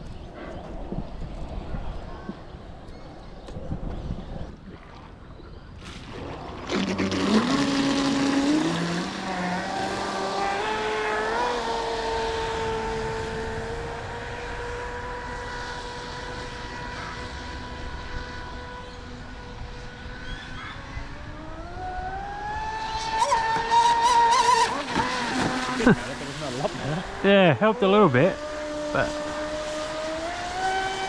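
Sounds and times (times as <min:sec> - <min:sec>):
electric motor whining: 0:06.6 - 0:20.4, 0:21.2 - 0:31.0.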